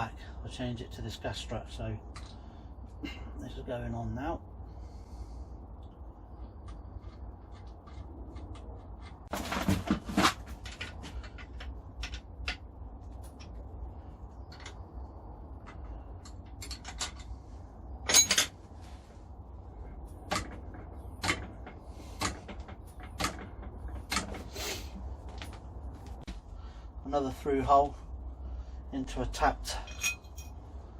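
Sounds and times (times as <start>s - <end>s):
steady low hum: 0.0s - 30.9s
metal tool parts clicking and knocking: 18.0s - 18.6s.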